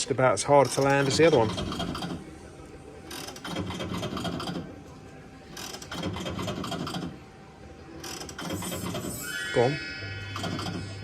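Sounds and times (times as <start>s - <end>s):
slot machine reels clicking: 0.5s - 2.3s, 3.1s - 4.8s, 5.5s - 7.2s, 8.0s - 9.7s, 10.3s - 11.0s.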